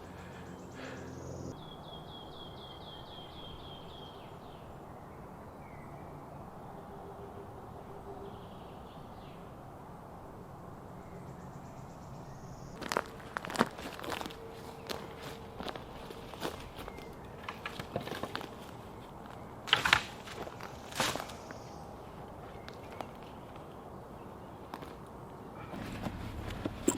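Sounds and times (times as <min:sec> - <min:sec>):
footsteps crunching on forest floor: 0:12.8 - 0:23.7.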